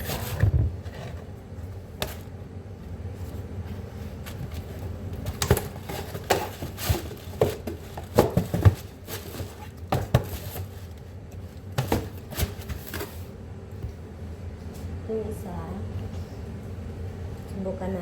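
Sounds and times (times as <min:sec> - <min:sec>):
cardboard rustling: 0:00.0 - 0:02.4, 0:03.0 - 0:13.4
knocks and taps on cardboard box: 0:05.2 - 0:10.7, 0:11.7 - 0:13.1.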